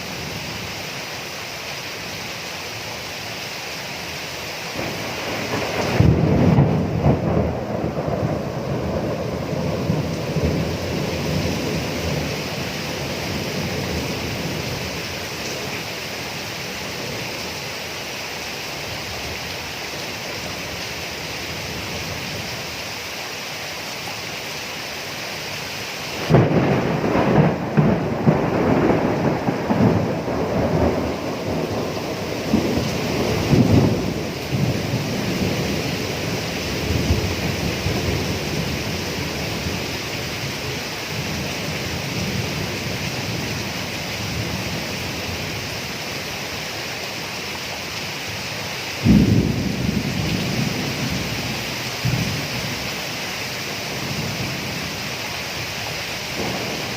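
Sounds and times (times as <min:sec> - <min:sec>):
heavy rain: 0:00.0 - 0:56.9
thunder rolling: 0:04.8 - 0:15.0, 0:26.2 - 0:39.9, 0:49.0 - 0:52.9, 0:56.3 - 0:56.9.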